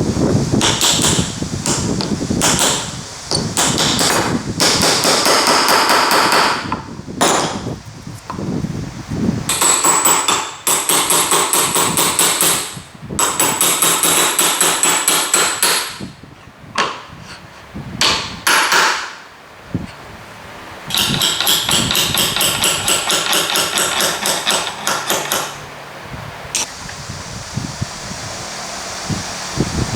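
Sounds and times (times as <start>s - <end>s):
hammer strikes: 0.6s - 7.7s, 9.5s - 16.0s, 18.0s - 19.2s, 20.9s - 25.6s.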